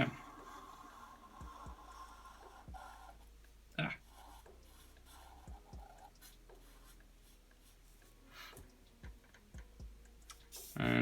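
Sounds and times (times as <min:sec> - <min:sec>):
pencil scratching on paper: 0:00.0 - 0:08.7, 0:10.5 - 0:11.0
soft knocks on drawing surface: 0:01.4 - 0:03.0.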